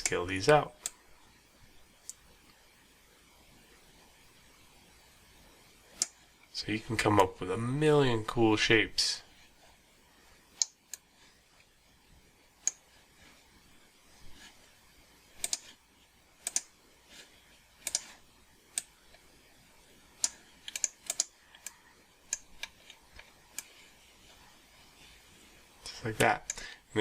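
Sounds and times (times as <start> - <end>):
mouse and keyboard clicks: 15.4 - 15.8, 16.4 - 16.7, 17.8 - 18.9, 20.2 - 23.7.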